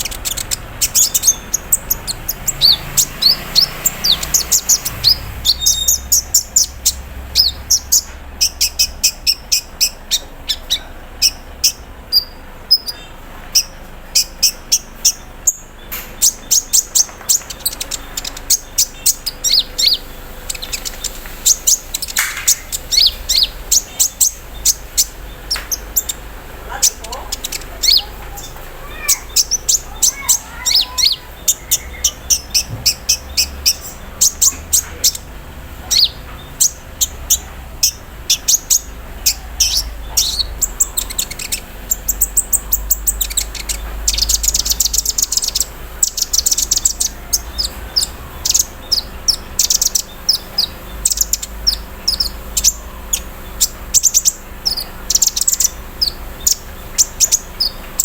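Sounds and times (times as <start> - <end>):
bird buzzing trill: 0.0 - 10.2, 13.5 - 35.2
sunbird chirping and trilling: 0.0 - 58.0.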